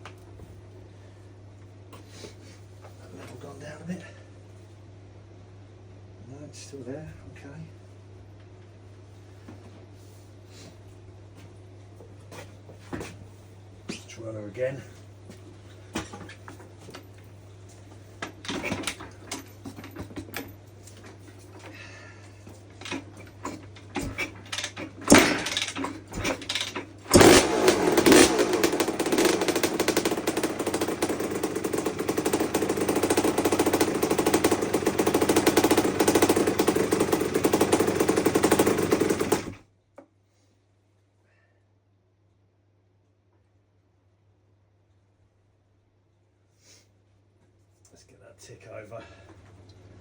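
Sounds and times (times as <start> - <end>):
knocks and clatter: 22.8 - 39.6
two-stroke engine idling: 22.8 - 39.6.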